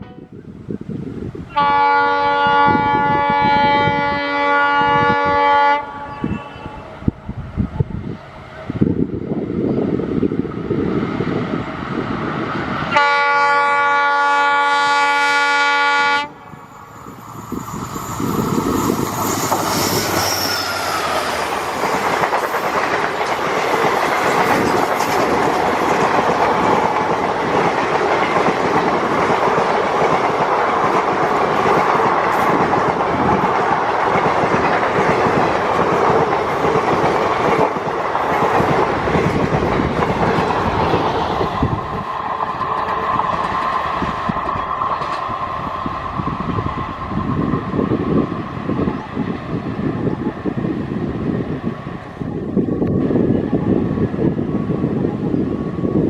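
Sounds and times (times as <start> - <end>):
train rumbling past: 0.0 - 56.0
locomotive horn blast: 1.5 - 6.8, 12.9 - 16.5
wheels clacking over rail joints: 19.0 - 45.6.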